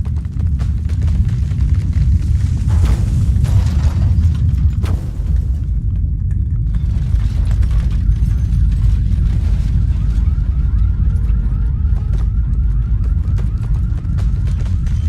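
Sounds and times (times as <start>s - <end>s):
heavy low rumbling: 0.0s - 15.0s
car alarm chirping: 9.8s - 14.0s.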